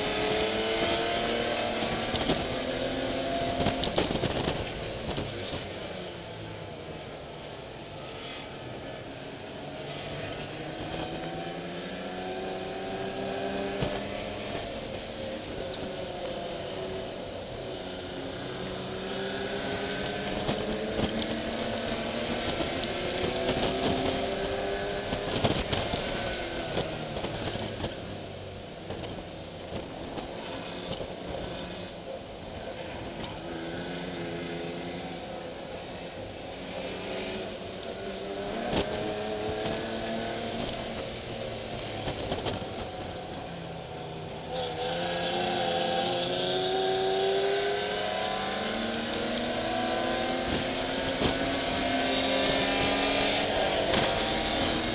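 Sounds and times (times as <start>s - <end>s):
racing car engine revving: 0.0s - 5.6s, 32.8s - 54.9s.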